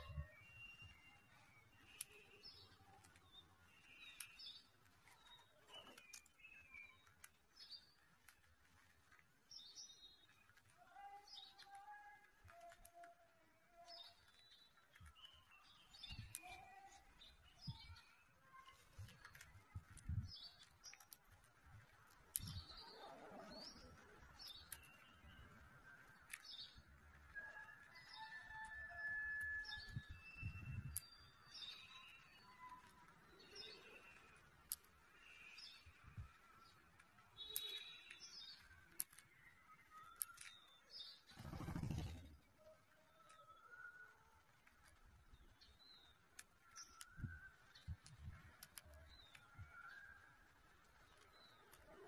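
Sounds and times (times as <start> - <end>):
faint bird chirps: 0.0 - 8.1, 22.3 - 52.0
sharp clicks: 30.2 - 42.5.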